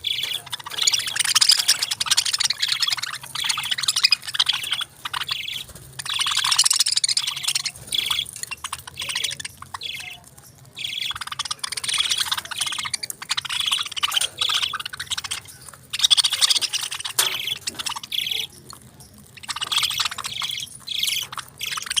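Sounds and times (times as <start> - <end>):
parakeets chirping: 0.0 - 22.0.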